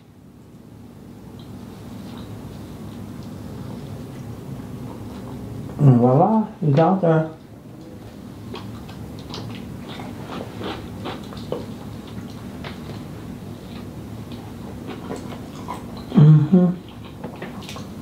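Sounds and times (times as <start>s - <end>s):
chewing food: 1.3s - 5.8s, 7.4s - 16.2s, 16.8s - 18.0s
wet mouth clicks: 7.8s - 12.4s.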